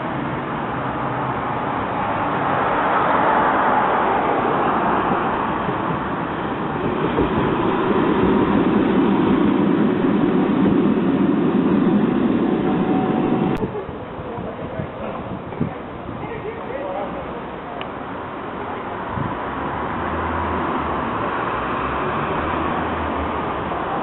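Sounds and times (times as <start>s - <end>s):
tram rumbling on rails: 0.0s - 24.0s.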